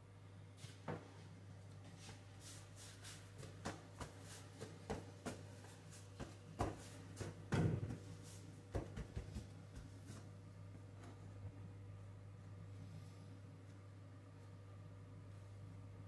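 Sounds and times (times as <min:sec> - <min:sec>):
steady low hum: 0:00.0 - 0:16.0
hands rolling dough on worktop: 0:01.8 - 0:11.2.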